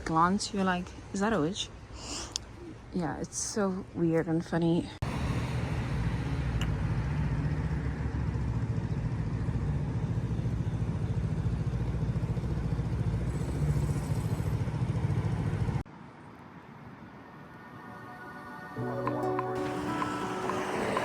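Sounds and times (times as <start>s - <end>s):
street noise: 0.0s - 21.0s
vehicle engine humming: 5.0s - 16.0s, 19.0s - 21.0s.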